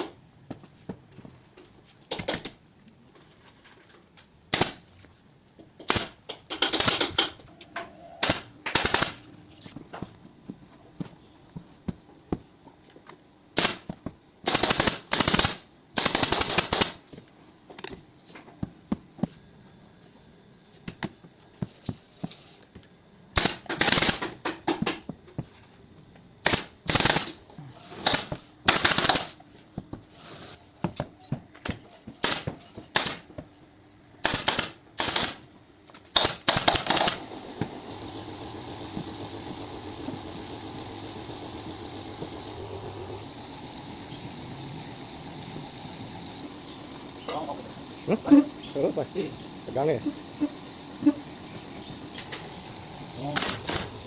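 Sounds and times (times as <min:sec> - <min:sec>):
pneumatic staple gun firing: 0:04.5 - 0:04.8, 0:05.8 - 0:07.4, 0:08.2 - 0:09.2, 0:13.5 - 0:17.0, 0:23.3 - 0:24.8, 0:26.4 - 0:27.4, 0:28.0 - 0:29.4, 0:32.2 - 0:33.3, 0:34.2 - 0:35.4, 0:36.0 - 0:44.4, 0:50.3 - 0:54.0
steady machine hum: 0:36.4 - 0:54.0.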